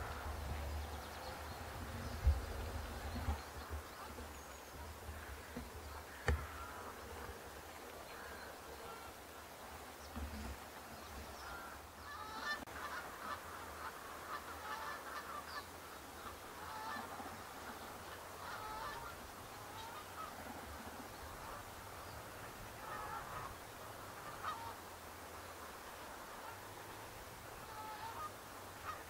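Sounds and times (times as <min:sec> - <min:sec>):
geese honking: 0:05.2 - 0:07.2, 0:11.4 - 0:15.6, 0:16.2 - 0:17.2, 0:18.0 - 0:20.3, 0:22.8 - 0:24.8, 0:27.6 - 0:29.0.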